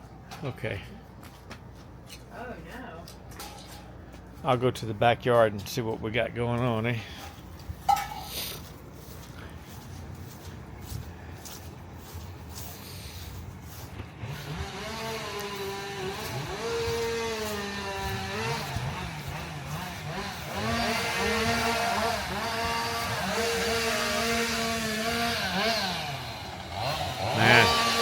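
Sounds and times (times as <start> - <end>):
chainsaw engine revving: 14.1 - 28.0.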